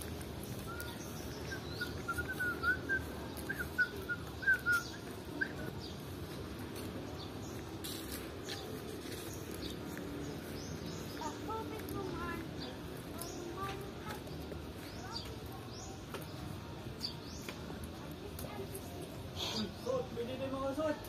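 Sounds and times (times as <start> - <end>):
bird chirping: 0.0 - 6.4
low background noise: 0.0 - 21.0.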